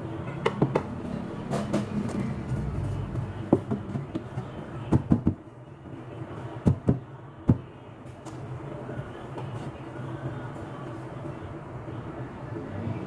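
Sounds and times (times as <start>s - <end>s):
objects knocking and clunking: 0.4s - 5.4s
low steady hum: 1.0s - 6.4s.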